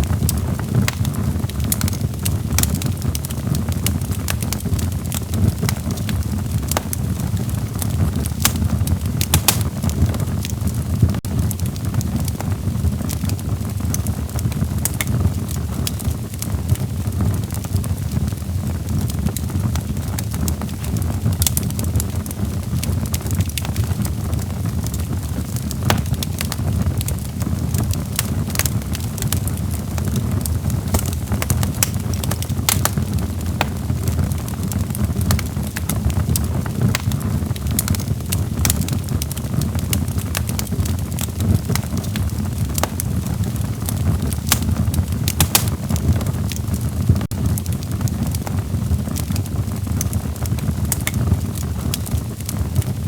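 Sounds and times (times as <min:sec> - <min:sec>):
low roar of flames: 0:00.0 - 0:53.0
logs popping and snapping: 0:08.2 - 0:10.6, 0:25.6 - 0:26.7, 0:30.8 - 0:34.3, 0:41.6 - 0:43.4, 0:44.4 - 0:46.2.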